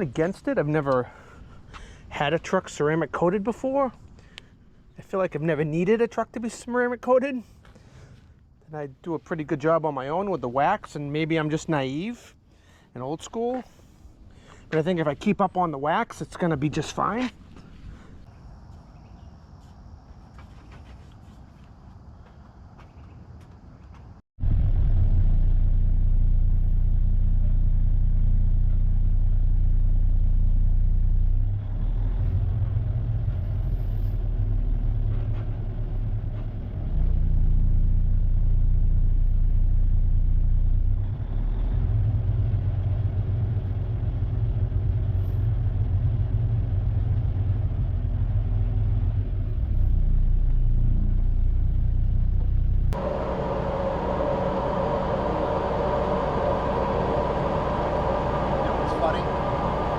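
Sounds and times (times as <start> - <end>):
diesel truck engine rumbling: 24.4 - 59.9
higher-pitched engine: 24.4 - 59.9.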